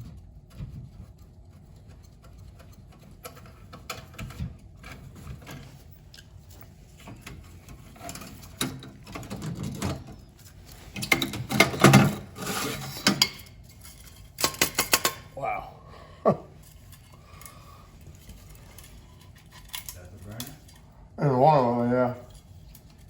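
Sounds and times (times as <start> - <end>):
metallic clicks and rattles: 13.0 - 15.3.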